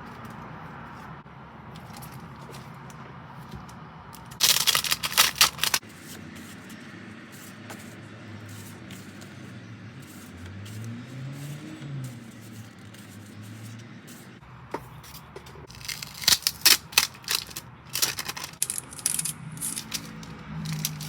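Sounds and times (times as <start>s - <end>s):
packaging crinkling and rustling: 4.4s - 5.8s, 15.7s - 21.0s.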